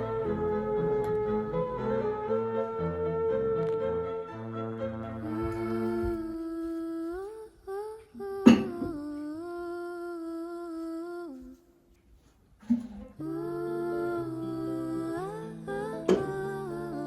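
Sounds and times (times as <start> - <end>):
person humming a slow tune: 0.0 - 2.8, 5.2 - 11.8, 13.1 - 17.0.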